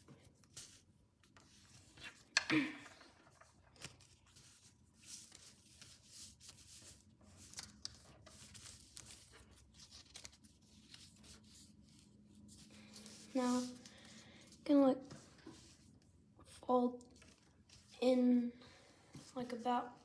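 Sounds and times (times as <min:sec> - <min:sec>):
paper rustling and crinkling: 0:03.0 - 0:16.0, 0:17.0 - 0:17.9.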